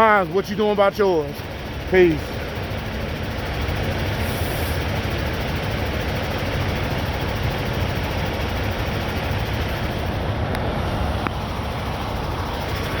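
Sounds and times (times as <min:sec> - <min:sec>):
diesel truck engines idling: 0:00.0 - 0:13.0.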